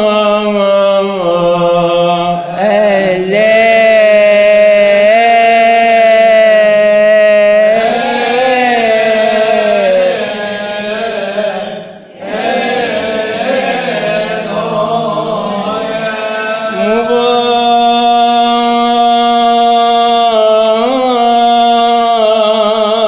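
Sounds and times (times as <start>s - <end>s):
man chanting solo: 0.0s - 11.9s, 14.2s - 23.0s.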